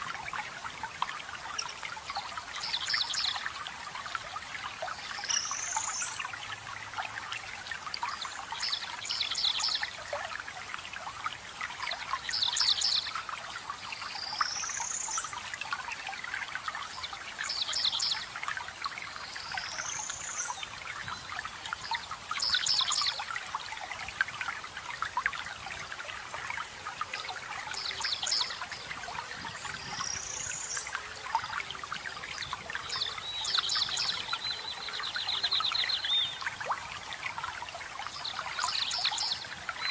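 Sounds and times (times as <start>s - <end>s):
water trickling and splashing: 0.0s - 39.9s
songbirds calling: 4.9s - 6.4s, 27.1s - 37.3s.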